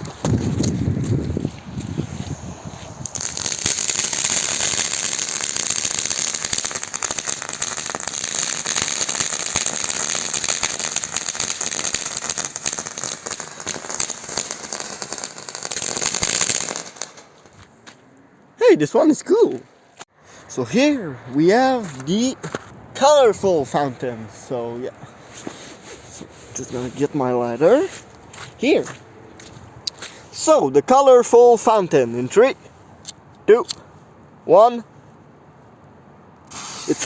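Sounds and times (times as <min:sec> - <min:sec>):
firework hissing and crackling: 0:01.8 - 0:17.6, 0:36.5 - 0:37.0.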